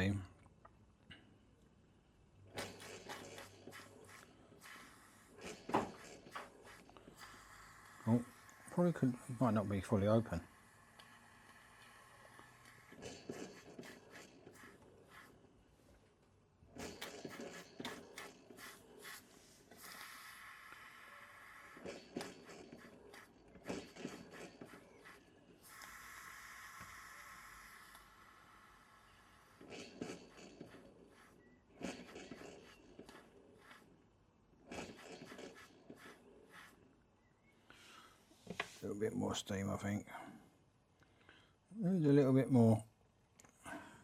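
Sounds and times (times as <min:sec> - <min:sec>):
faint steam exhaust puffs: 0:02.5 - 0:15.7, 0:16.8 - 0:33.9
model steam engine running: 0:19.8 - 0:33.8.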